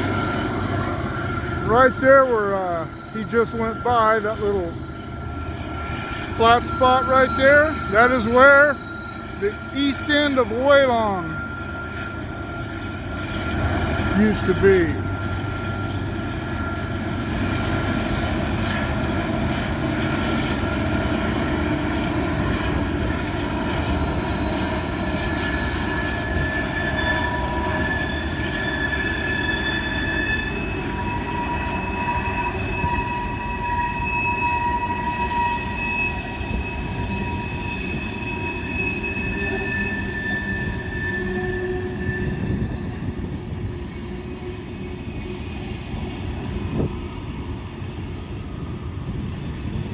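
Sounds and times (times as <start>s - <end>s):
freight train rumbling: 0.0s - 49.9s
train wheels squealing on rails: 0.0s - 49.9s.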